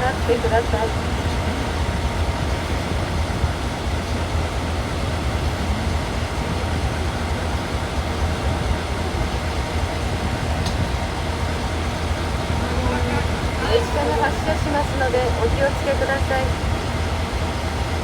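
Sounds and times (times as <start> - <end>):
diesel locomotive engine idling: 0.0 - 18.0.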